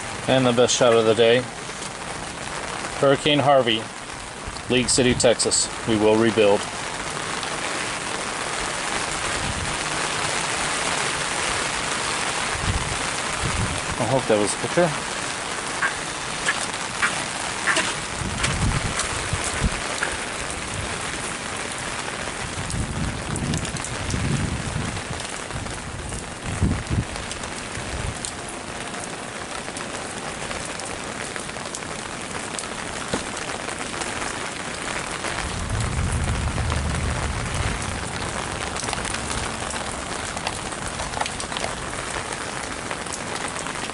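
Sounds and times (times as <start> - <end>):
heavy rain splashing: 0.0 - 43.9
low rumbles: 15.0 - 21.0.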